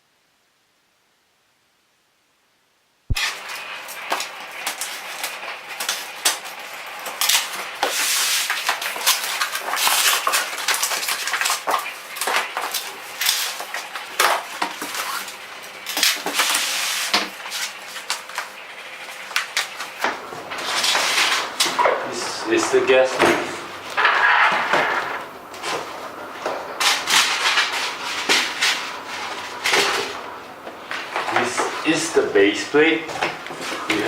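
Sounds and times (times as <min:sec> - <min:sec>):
packaging rustling: 0:03.1 - 0:21.8.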